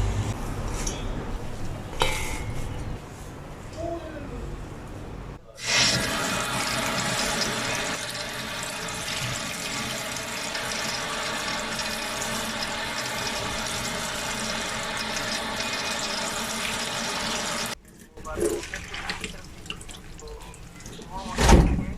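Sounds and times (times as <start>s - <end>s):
tap running into sink: 8.9s - 9.9s.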